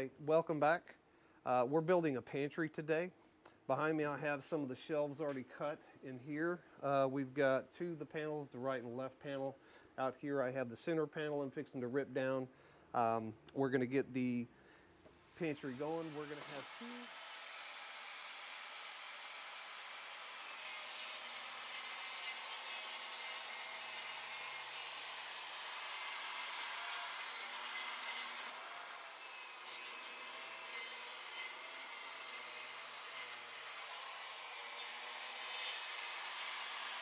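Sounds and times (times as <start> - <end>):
power saw cutting wood: 15.2 - 37.0.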